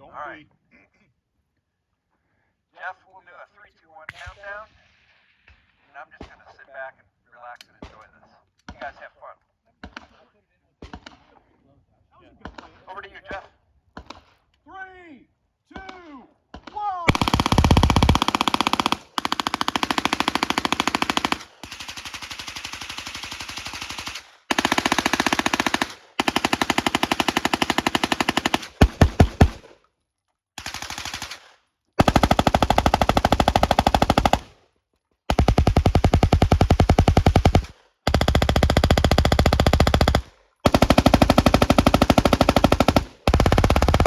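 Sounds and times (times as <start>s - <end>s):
louder spaced gunshots: 17.1s - 29.7s, 30.6s - 34.6s, 35.3s - 44.0s
submachine gun automatic fire: 17.1s - 29.7s, 30.6s - 34.6s, 35.3s - 44.0s.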